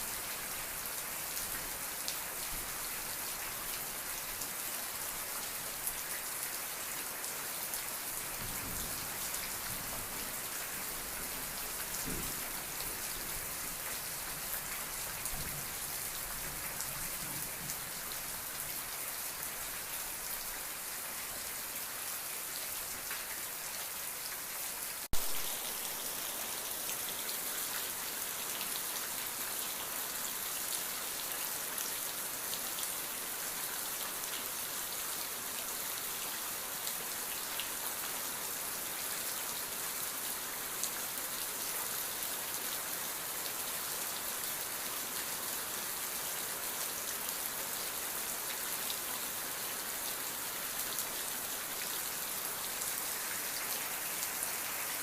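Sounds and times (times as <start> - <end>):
steady rain patter: 0.0 - 55.0.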